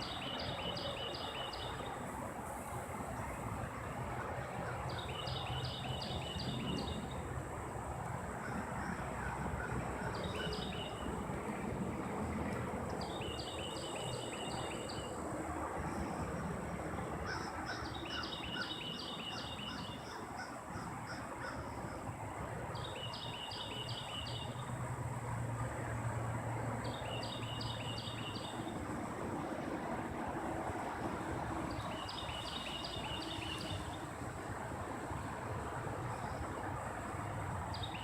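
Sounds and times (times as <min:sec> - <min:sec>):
songbird singing: 0:00.0 - 0:02.2, 0:04.4 - 0:07.4, 0:08.4 - 0:11.3, 0:12.9 - 0:22.1, 0:22.7 - 0:24.8, 0:26.8 - 0:28.8, 0:31.7 - 0:34.3, 0:37.7 - 0:38.0
outdoor background noise: 0:00.0 - 0:38.0.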